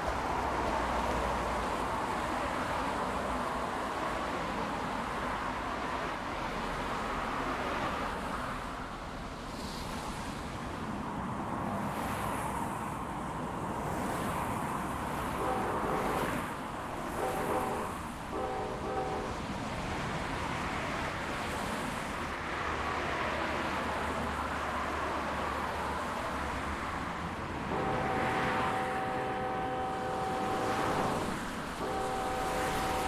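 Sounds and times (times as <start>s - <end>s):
freight train rumbling past: 14.8s - 33.0s
short pitched tones: 27.7s - 33.0s.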